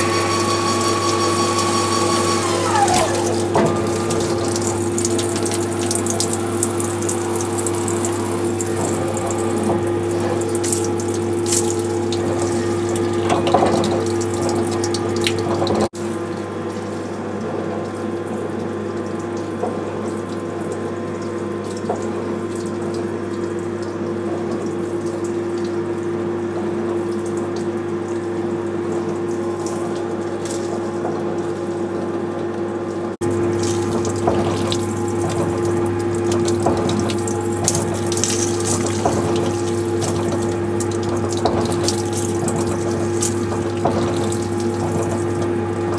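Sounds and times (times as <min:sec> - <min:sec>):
lathe machine hum: 0:00.0 - 0:15.9
coolant hissing and splashing: 0:00.0 - 0:32.5, 0:33.2 - 0:45.9.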